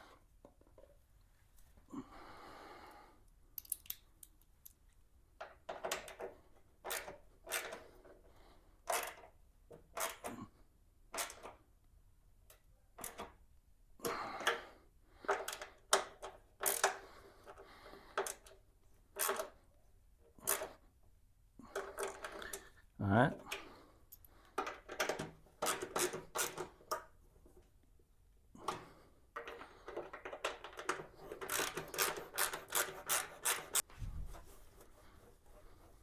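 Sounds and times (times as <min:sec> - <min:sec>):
metallic clicks of hand tools: 0:03.6 - 0:04.8.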